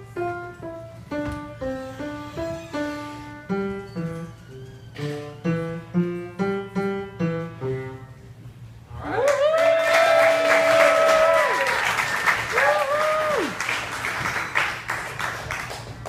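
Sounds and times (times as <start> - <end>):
child playing piano melody: 0.0 - 8.3.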